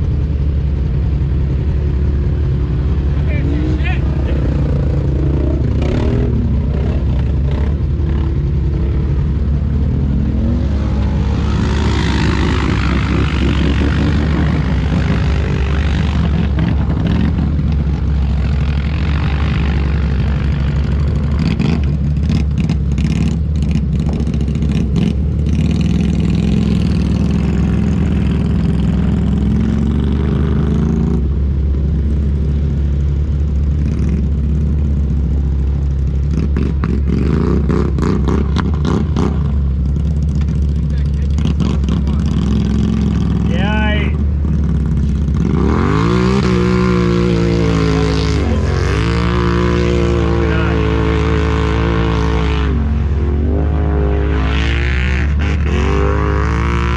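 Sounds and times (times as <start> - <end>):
atv engine revving: 0.0 - 56.9
clatters: 36.2 - 43.5.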